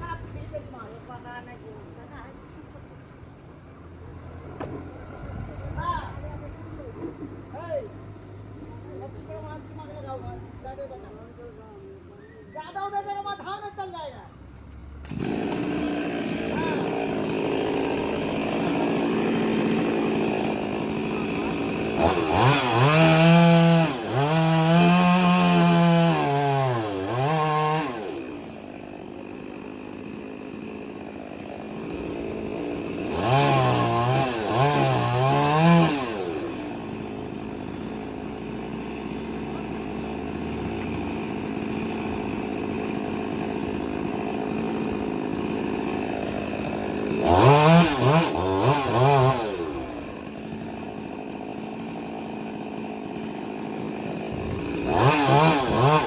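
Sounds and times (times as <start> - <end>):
chainsaw revving: 15.0 - 56.0.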